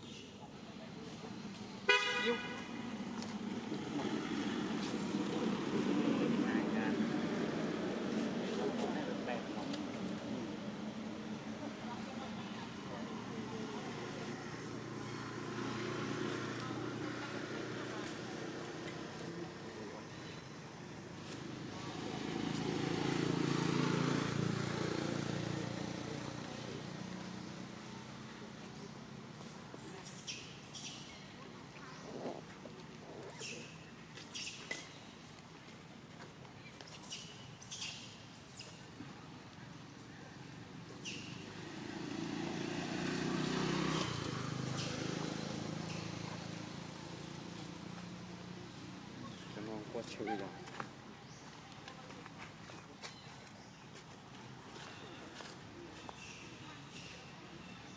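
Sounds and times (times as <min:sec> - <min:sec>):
vehicle driving past: 0:02.7 - 0:30.0, 0:40.9 - 0:50.9.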